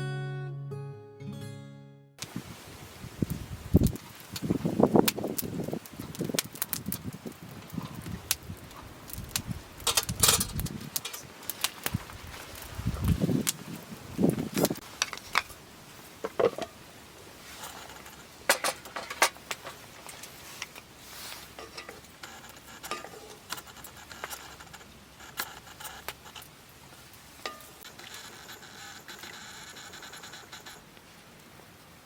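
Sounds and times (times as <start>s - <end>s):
cooking utensils and dishes clinking: 9.9s - 11.3s, 16.2s - 16.8s, 17.5s - 20.9s, 21.5s - 24.6s, 27.4s - 28.4s.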